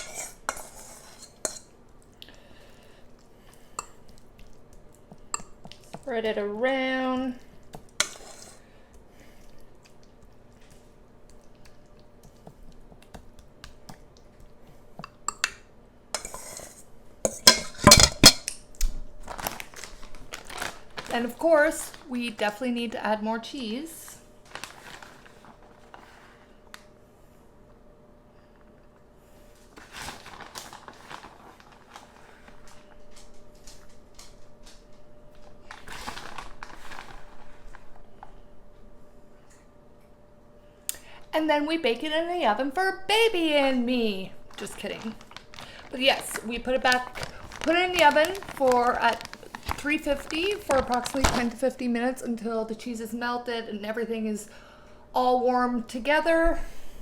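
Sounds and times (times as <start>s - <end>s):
spoon scraping and clinking on dish: 0.0s - 1.7s, 8.0s - 8.6s, 16.2s - 18.6s
food packet crinkling: 18.6s - 22.6s, 24.4s - 26.2s, 29.8s - 38.3s, 43.7s - 51.8s.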